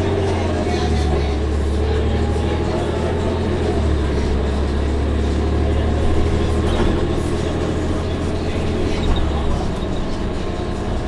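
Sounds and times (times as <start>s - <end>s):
bus engine droning: 0.0s - 11.0s.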